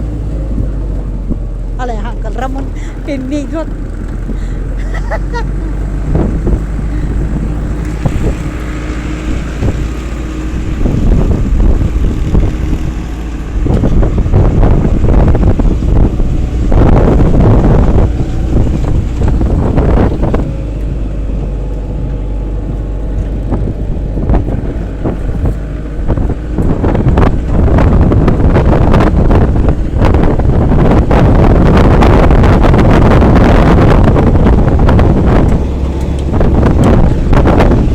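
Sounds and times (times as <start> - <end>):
vehicle rumbling along road: 0.0 - 37.9
wind buffeting microphone: 0.0 - 37.9.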